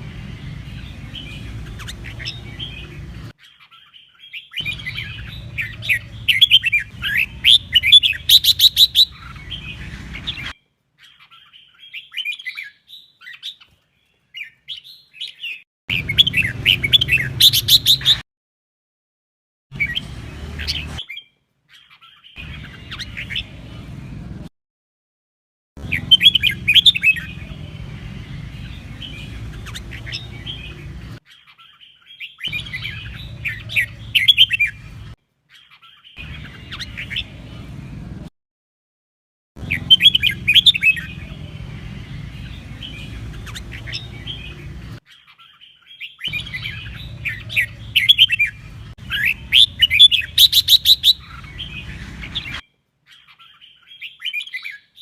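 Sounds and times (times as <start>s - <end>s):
bird whistled song phrases: 0.7s - 13.7s, 14.4s - 18.2s, 25.8s - 27.7s, 39.6s - 41.6s, 42.4s - 55.0s.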